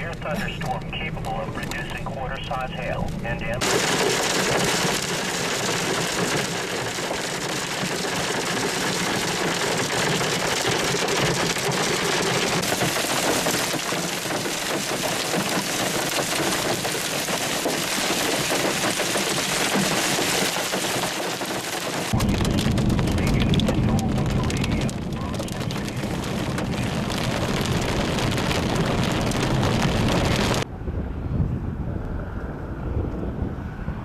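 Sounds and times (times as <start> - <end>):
hail falling hard: 3.0 - 30.6
deep rumble: 22.1 - 34.0.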